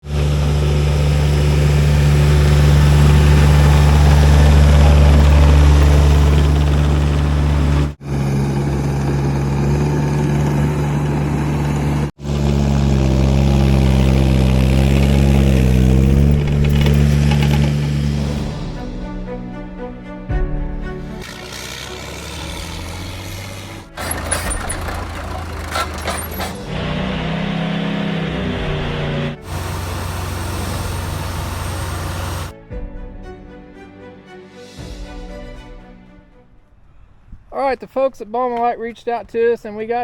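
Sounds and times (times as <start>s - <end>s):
small diesel engine running: 0.0s - 18.6s, 21.1s - 32.5s.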